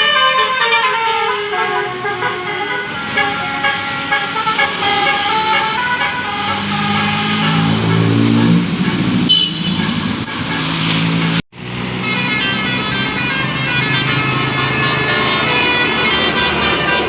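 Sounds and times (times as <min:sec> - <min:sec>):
bus air horn playing tune: 0:00.0 - 0:17.0.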